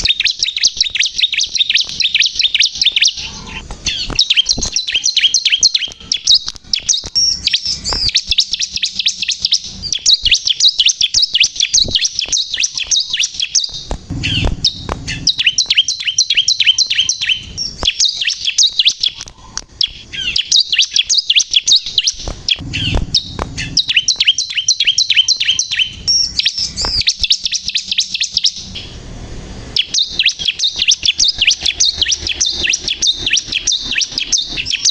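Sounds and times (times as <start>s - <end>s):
small bird singing high notes: 0.0s - 29.0s, 29.6s - 34.9s
low rumbles: 13.8s - 16.1s, 22.3s - 24.2s.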